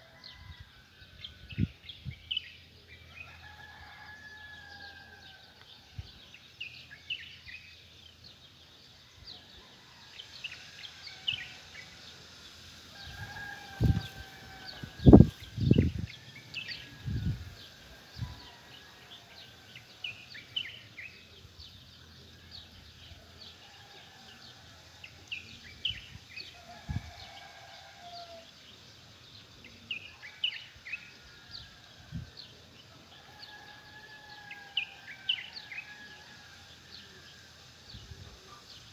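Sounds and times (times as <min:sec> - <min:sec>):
rooster crowing: 0:03.2 - 0:05.4, 0:12.9 - 0:20.2, 0:26.6 - 0:28.6, 0:33.1 - 0:36.9.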